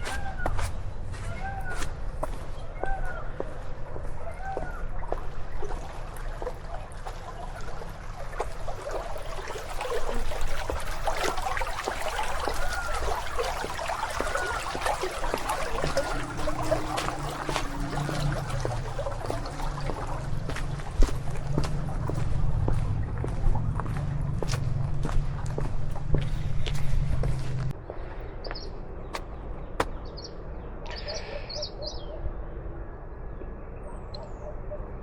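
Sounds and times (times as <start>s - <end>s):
water trickling and gurgling: 4.0s - 27.8s
low rumble: 16.2s - 30.9s.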